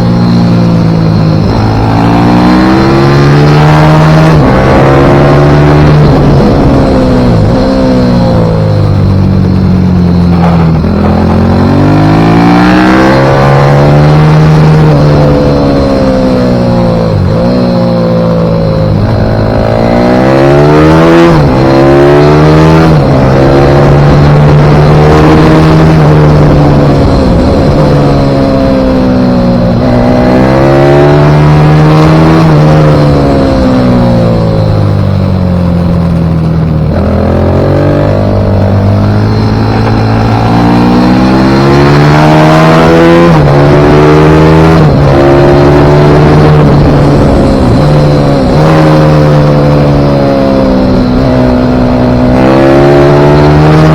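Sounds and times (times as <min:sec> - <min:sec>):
pit bike engine at full throttle: 0:00.0 - 0:53.9.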